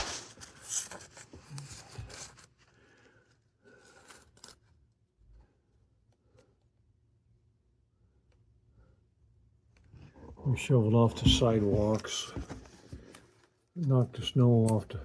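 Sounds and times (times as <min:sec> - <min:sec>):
close rubbing and scraping: 0:00.0 - 0:02.4.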